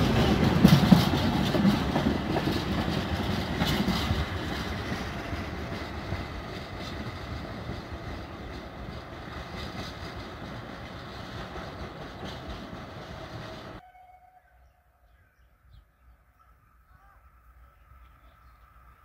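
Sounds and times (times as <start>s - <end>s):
train wheel noise: 0.0s - 13.8s
faint outdoor background: 0.0s - 19.0s.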